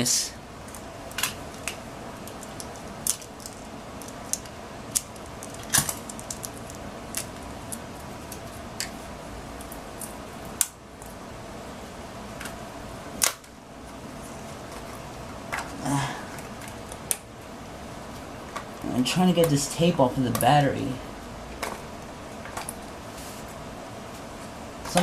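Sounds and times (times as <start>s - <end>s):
steady background hum: 0.0s - 25.0s
sharp clicks and crinkles: 0.6s - 9.0s.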